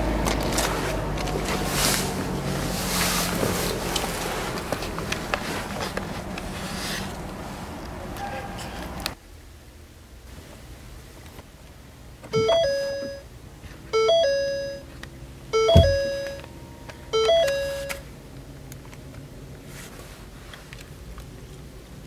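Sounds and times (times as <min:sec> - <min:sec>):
dashboard warning chime: 0:12.3 - 0:13.3, 0:13.9 - 0:14.9, 0:15.5 - 0:18.0.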